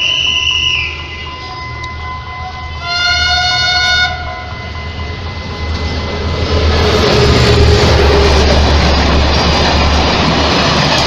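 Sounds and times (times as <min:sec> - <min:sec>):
train passing rumble: 0:00.0 - 0:11.0
train horn blast: 0:00.3 - 0:05.5.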